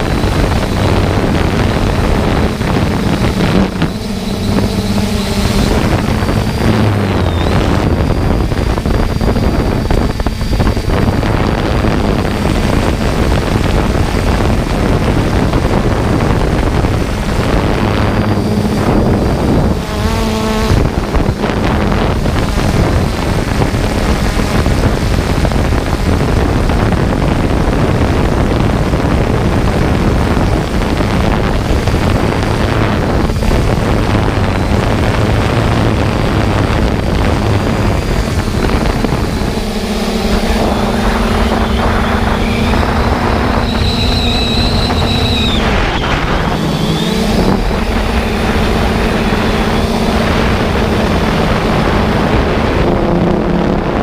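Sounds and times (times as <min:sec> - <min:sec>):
brief buzzing tone: 0:00.0 - 0:14.3, 0:31.0 - 0:51.7
drone propeller hum: 0:00.0 - 0:54.0
wind noise on microphone: 0:00.0 - 0:54.0.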